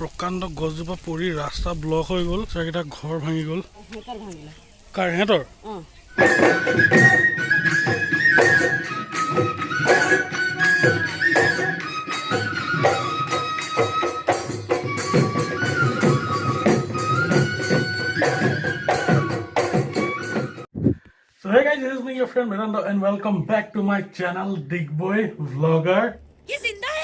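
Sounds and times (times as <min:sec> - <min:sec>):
flute-like wind instrument melody: 0:06.1 - 0:20.7.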